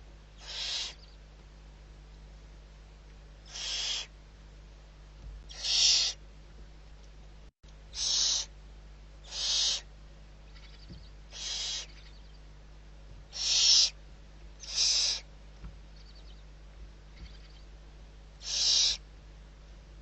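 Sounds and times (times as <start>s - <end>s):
owl hissing screeches: 0.4s - 1.1s, 3.4s - 4.1s, 5.5s - 6.2s, 7.9s - 8.5s, 9.2s - 9.9s, 10.5s - 12.2s, 13.3s - 14.0s, 14.6s - 15.3s, 18.4s - 19.0s.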